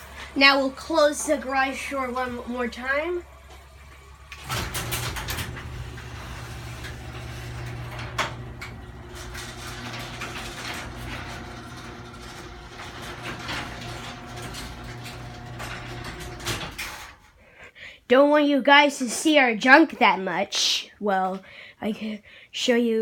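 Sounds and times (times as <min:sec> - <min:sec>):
garage door opener motor hum: 0:00.0 - 0:17.4
chain and door rattling: 0:04.3 - 0:17.2.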